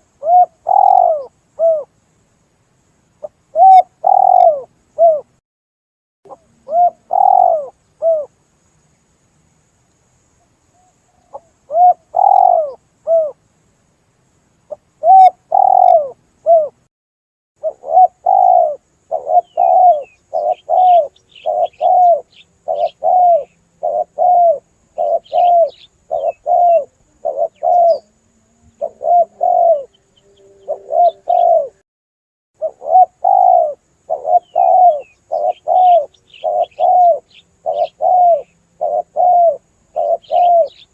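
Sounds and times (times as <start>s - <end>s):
dove cooing: 0.0s - 1.9s, 3.5s - 5.3s, 6.3s - 8.3s, 10.8s - 13.4s, 15.0s - 16.8s, 17.6s - 31.8s, 32.6s - 40.9s
small birds chirping: 0.0s - 2.4s, 3.1s - 5.3s, 6.3s - 13.4s, 14.6s - 16.8s, 17.6s - 31.8s, 32.6s - 40.9s.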